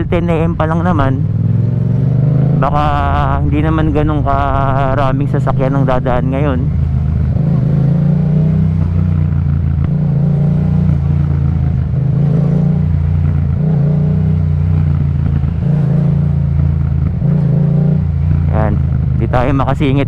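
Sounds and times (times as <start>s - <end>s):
motorcycle engine while riding: 0.0s - 20.0s.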